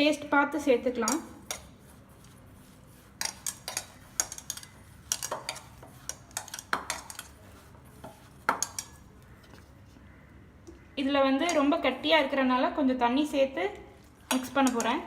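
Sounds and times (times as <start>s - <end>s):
metal spoon clinking against bowl: 8.5s - 9.0s, 14.3s - 15.0s.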